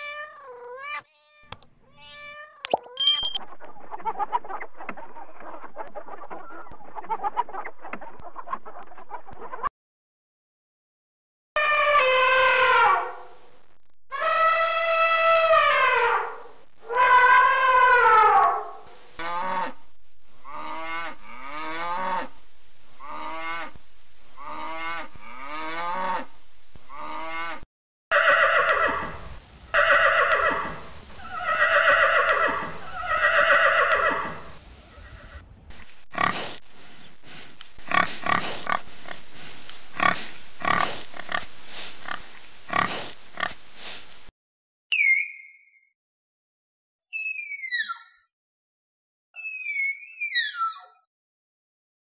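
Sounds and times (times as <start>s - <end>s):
horse neighing: 29.8s - 34.5s
pigs grunting: 36.1s - 36.6s, 37.8s - 39.2s, 40.0s - 43.6s.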